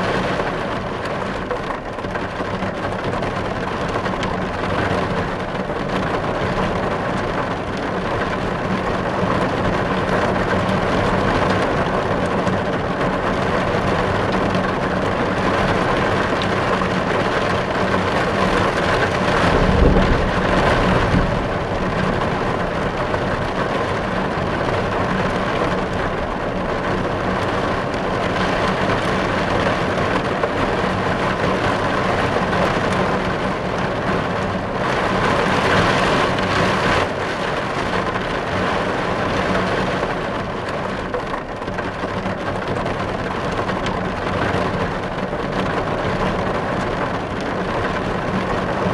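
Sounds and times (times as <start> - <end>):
heavy rain on car glass: 0.0 - 48.9
low rumble: 19.3 - 24.2.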